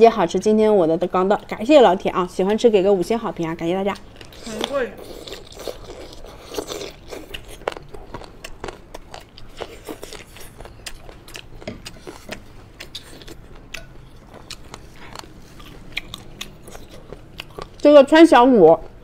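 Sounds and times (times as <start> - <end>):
wet chewing mouth sounds: 3.9 - 17.9.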